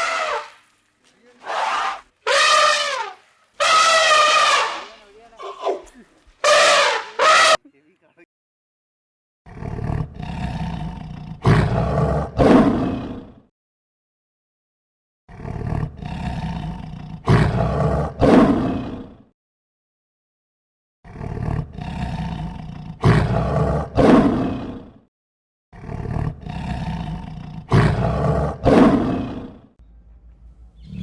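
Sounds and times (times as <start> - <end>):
animal roaring: 0.0 - 0.6, 1.4 - 7.6, 9.5 - 13.4, 15.3 - 19.2, 21.1 - 25.0, 25.8 - 29.6.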